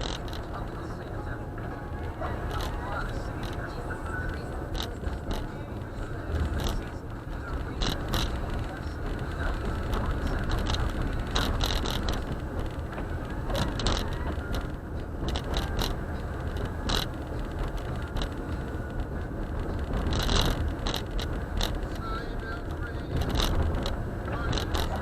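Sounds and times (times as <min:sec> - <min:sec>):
irregular clicks and knocks: 0:00.0 - 0:00.7, 0:06.3 - 0:22.0, 0:22.6 - 0:25.0
tyre and road noise on snow: 0:00.0 - 0:25.0.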